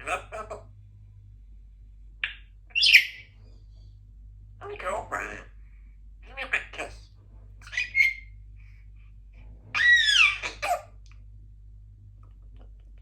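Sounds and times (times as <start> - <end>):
parrot squawk: 0.0 - 0.7, 2.2 - 3.4, 4.6 - 5.6, 6.2 - 7.0, 7.6 - 8.4, 9.7 - 11.0
parrot whistled call: 2.2 - 3.3, 9.8 - 10.8
parrot chirp: 2.2 - 3.5, 7.6 - 8.4, 9.7 - 11.0.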